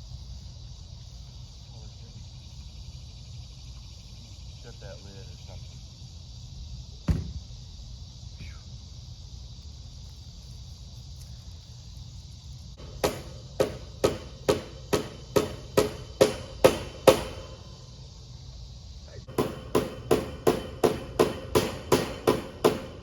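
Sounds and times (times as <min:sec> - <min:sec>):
hammer striking: 0:12.8 - 0:17.6, 0:19.3 - 0:23.0.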